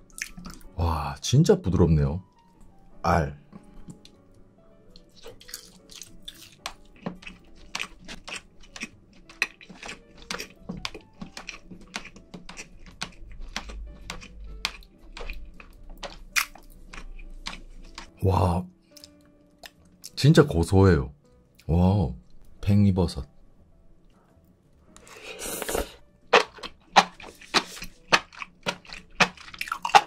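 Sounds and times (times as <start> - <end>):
wet chewing: 0.0 - 0.7, 4.9 - 18.2, 18.9 - 20.2, 24.9 - 30.0.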